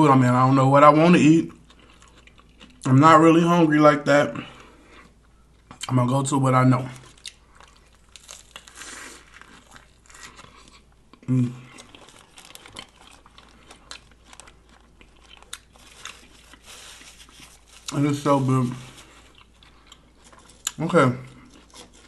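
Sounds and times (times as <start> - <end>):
chewing and crunching: 0.3 - 3.0, 6.8 - 22.0
paper wrapper crinkling: 6.9 - 10.8, 11.8 - 20.7, 21.3 - 22.0.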